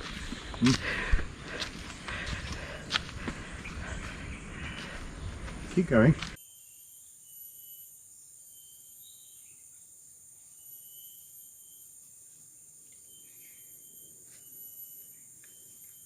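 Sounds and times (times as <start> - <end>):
high-pitched insect trills: 4.1 - 16.0
lower chirping call: 6.4 - 16.0.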